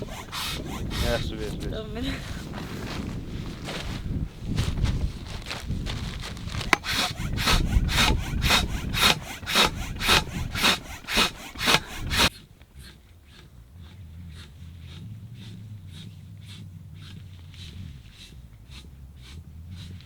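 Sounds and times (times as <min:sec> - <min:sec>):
hand saw cutting wood: 0:00.0 - 0:02.2, 0:06.4 - 0:20.0.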